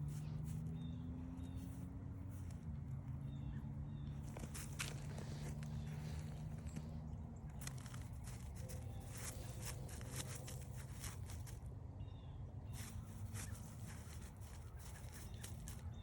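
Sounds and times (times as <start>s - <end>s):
steady low rumble: 0.0s - 16.0s
footsteps crunching on trail: 4.2s - 11.7s, 12.8s - 16.0s.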